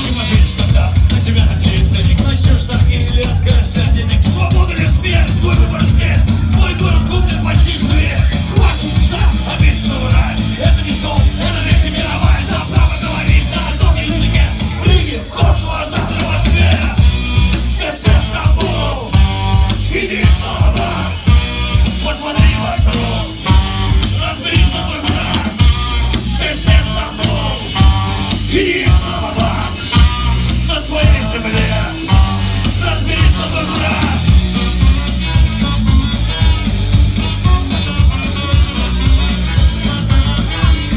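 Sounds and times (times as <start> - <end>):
sung and shouted vocals: 0.0 - 34.4
punk rock band playing live: 0.0 - 40.9.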